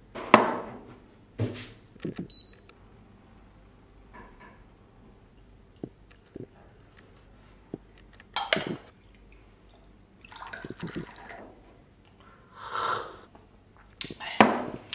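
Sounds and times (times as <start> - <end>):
liquid splashing: 8.5 - 11.5
liquid trickling: 8.9 - 11.7.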